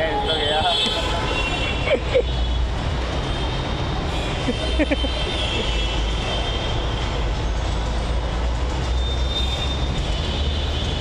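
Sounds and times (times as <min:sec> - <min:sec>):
metro train rumbling on track: 0:05.6 - 0:11.0.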